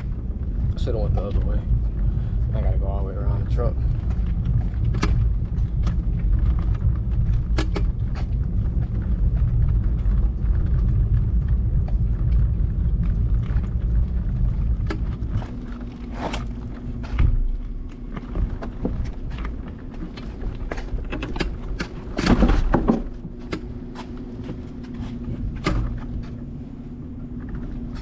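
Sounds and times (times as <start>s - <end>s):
knocks and rattles: 3.7s - 26.4s.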